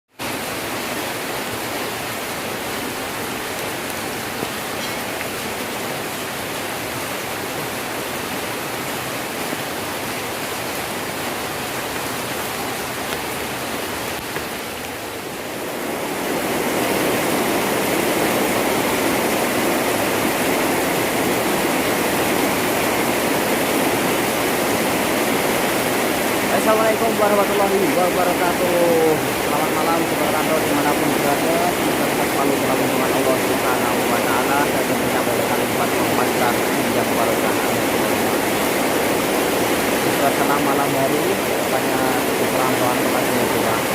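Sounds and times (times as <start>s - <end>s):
heavy rain falling: 0.1s - 43.9s.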